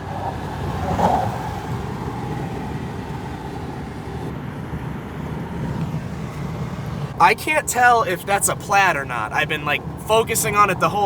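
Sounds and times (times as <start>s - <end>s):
engine and road rumble in cab: 0.0s - 11.0s.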